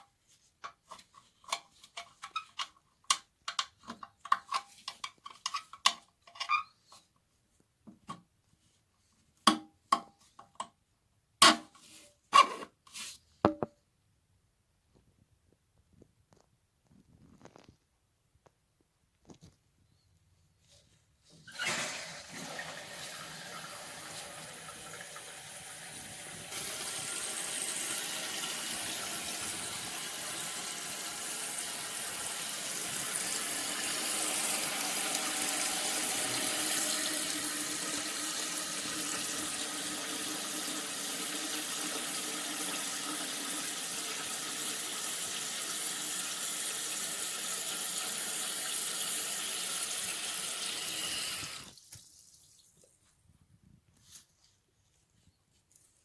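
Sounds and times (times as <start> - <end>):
toilet tank refilling: 21.5 - 51.9.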